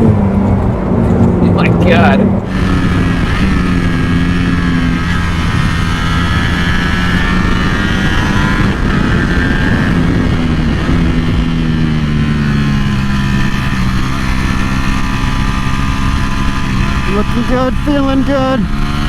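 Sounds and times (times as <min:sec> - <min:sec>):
motorcycle engine under throttle: 0:00.0 - 0:19.0
wind noise: 0:00.0 - 0:19.0.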